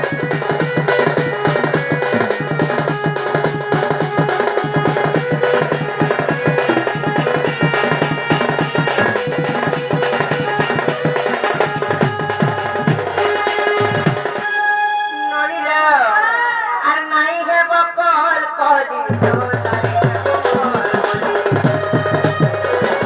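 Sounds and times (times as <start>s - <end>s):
fast dense drumming: 0.0s - 14.4s, 19.1s - 23.0s.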